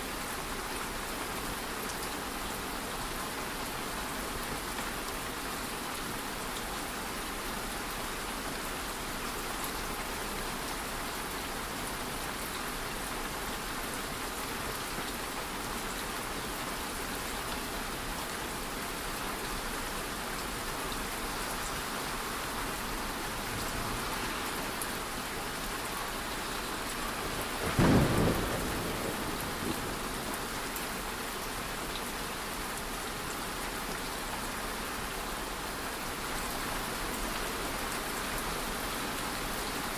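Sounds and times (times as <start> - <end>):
steady rain falling: 0.0 - 39.9
thunder rumble: 27.3 - 30.4.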